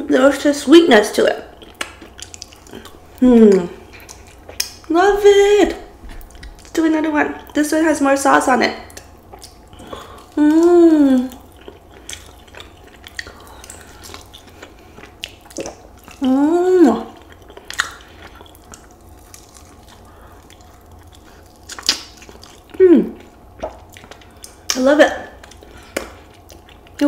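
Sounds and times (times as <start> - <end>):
chewing and lip-smacking: 1.5 - 4.9, 6.0 - 7.6, 8.8 - 27.0
person humming mmm: 3.2 - 3.9, 9.9 - 11.4, 16.2 - 17.2, 22.8 - 23.3.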